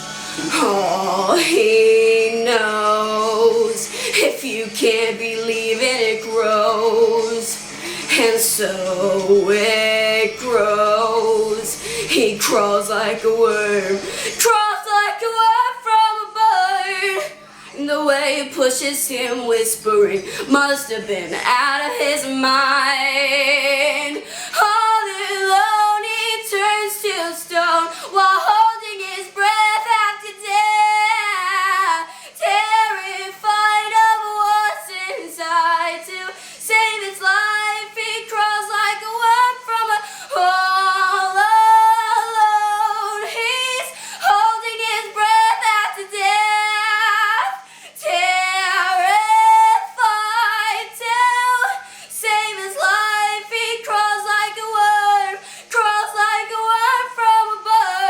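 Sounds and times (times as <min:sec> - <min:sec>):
girl singing unaccompanied: 0:00.0 - 0:58.0.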